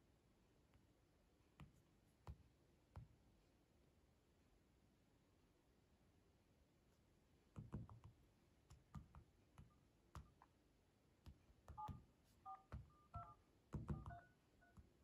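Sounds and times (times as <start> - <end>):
fingers tapping touchscreen: 7.6 - 10.6, 11.2 - 15.0.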